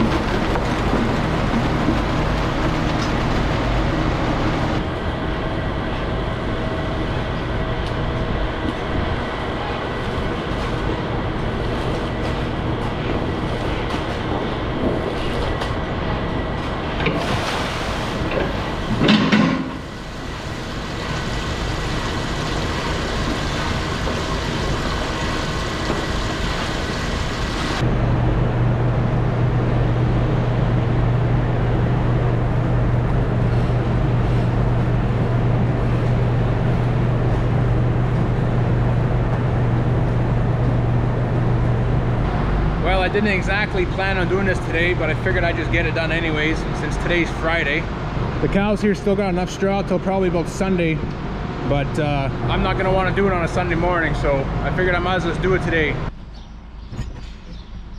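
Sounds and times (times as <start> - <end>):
farm machinery engine running: 0.0 - 7.2, 10.2 - 29.4.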